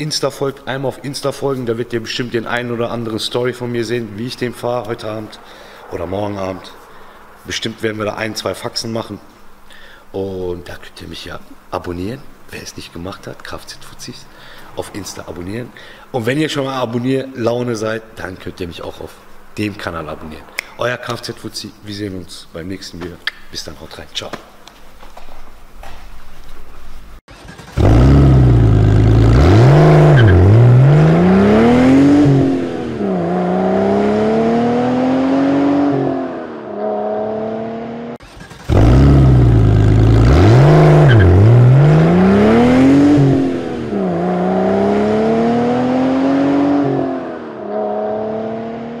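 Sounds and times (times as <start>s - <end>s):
car engine revving: 27.3s - 49.0s.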